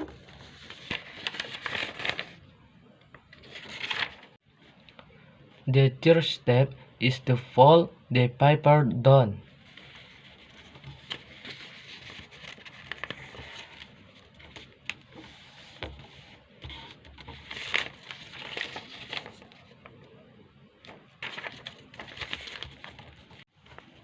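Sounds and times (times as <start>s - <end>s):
paper rustling and crinkling: 0.0s - 2.4s, 3.3s - 4.4s, 9.6s - 19.9s, 20.8s - 24.0s
paper fold snaps: 10.5s - 13.9s.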